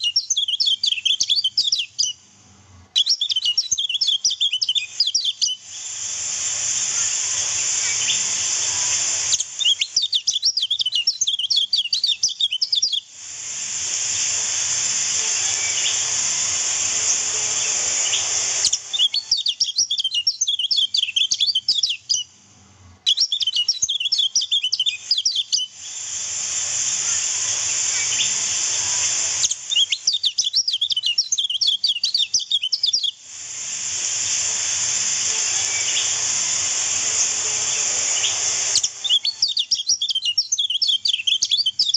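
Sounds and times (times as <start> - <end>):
bird twittering chirps: 0.0 - 2.2, 2.9 - 5.6, 7.8 - 8.4, 9.3 - 13.1, 15.2 - 16.2, 17.0 - 22.3, 23.1 - 25.7, 27.7 - 33.2, 35.5 - 36.3, 37.0 - 41.9
steady high hiss: 0.0 - 41.9.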